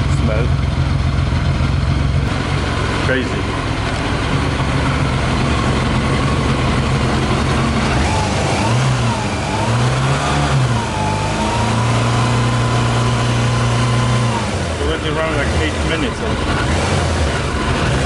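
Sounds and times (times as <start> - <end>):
motorcycle engine idling: 0.0 - 9.5, 14.5 - 18.0.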